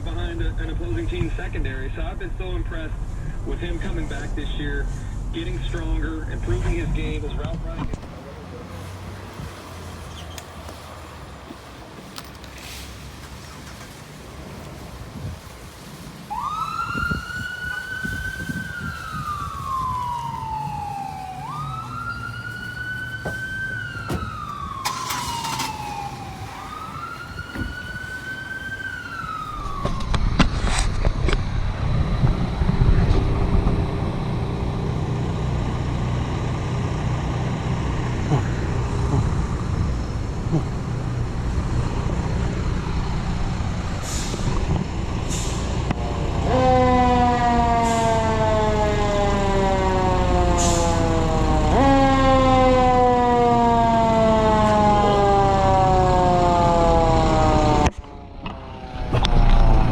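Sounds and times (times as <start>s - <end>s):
heavy vehicle engine rumble: 0.0s - 59.9s
siren wailing: 16.3s - 31.0s, 46.1s - 59.9s.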